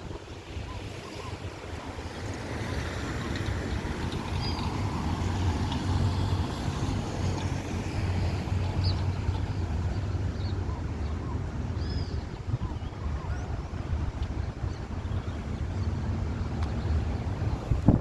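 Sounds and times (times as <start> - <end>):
wind noise on microphone: 0.0 - 18.0.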